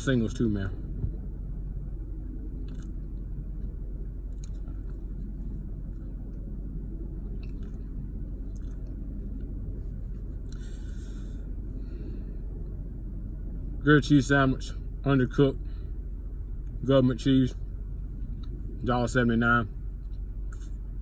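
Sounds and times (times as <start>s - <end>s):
steady low rumble: 0.0s - 21.0s
soft mouth clicks: 2.6s - 3.0s
man chewing: 2.7s - 3.1s, 7.3s - 7.8s, 8.5s - 9.3s.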